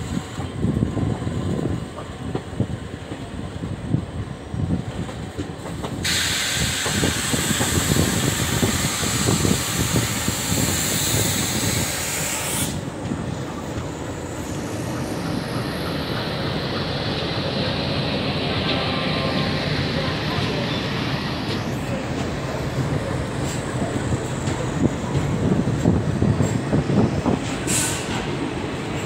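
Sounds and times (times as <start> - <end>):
train rumble: 0.0 - 29.0
loud hiss: 6.0 - 12.8.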